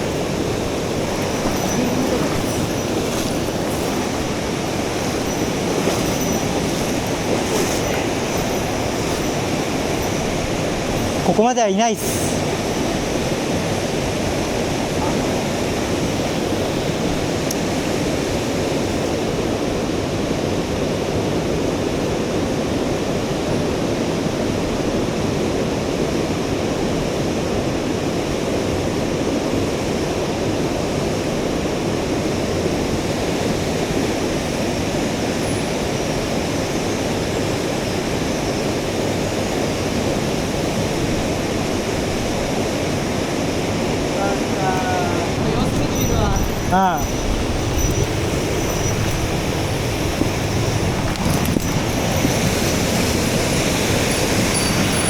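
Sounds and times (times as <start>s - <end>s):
stream water rushing over rocks: 0.0s - 21.1s, 32.2s - 55.0s.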